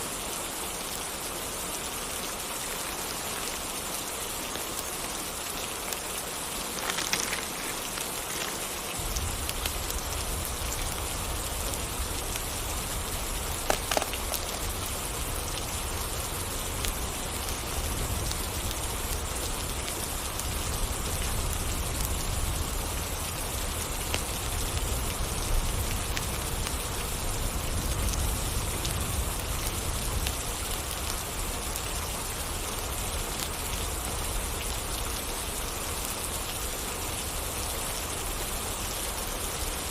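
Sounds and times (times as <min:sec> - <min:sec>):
rain pattering on surfaces: 0:00.0 - 0:39.9
raindrop ticks: 0:05.8 - 0:22.5, 0:23.1 - 0:35.4.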